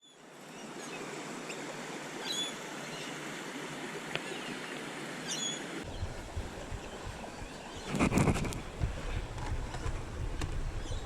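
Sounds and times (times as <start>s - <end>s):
birds chirping: 5.3s - 11.0s.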